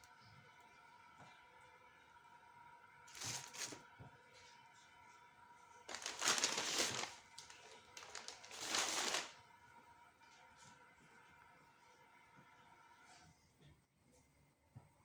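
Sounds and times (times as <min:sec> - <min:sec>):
rustling crinkling noise: 0:03.1 - 0:03.8, 0:05.9 - 0:09.4.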